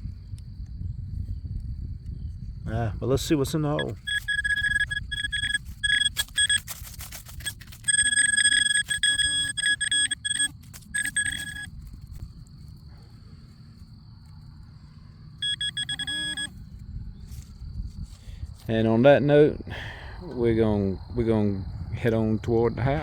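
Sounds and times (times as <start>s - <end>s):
metal detector beeping: 3.7s - 11.8s, 15.4s - 16.6s
tools scraping soil: 3.8s - 11.7s.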